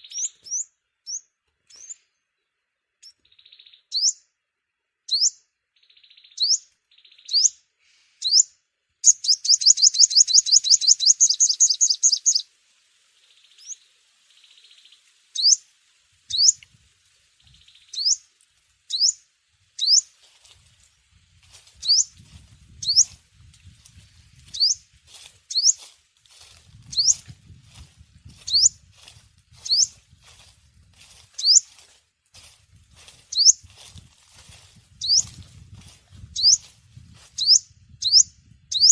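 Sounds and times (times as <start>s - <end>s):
bird chirping: 0.0s - 4.4s, 5.0s - 12.5s, 13.2s - 15.7s, 16.3s - 16.7s, 17.4s - 18.3s, 18.9s - 20.2s, 21.6s - 23.2s, 24.4s - 30.4s, 31.0s - 35.5s, 36.2s - 38.9s
bird trilling: 8.2s - 12.4s, 21.8s - 22.1s, 22.8s - 23.2s, 24.5s - 24.8s, 25.5s - 25.8s, 26.9s - 27.3s, 28.4s - 28.8s, 29.6s - 30.0s, 31.4s - 31.8s, 33.3s - 33.7s, 35.0s - 35.4s, 36.4s - 36.7s, 37.4s - 38.9s.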